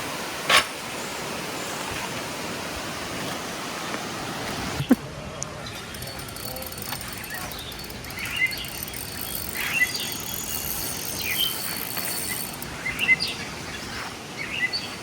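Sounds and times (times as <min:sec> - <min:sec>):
birds chirping: 0:04.8 - 0:15.0
insect drone: 0:05.6 - 0:14.1.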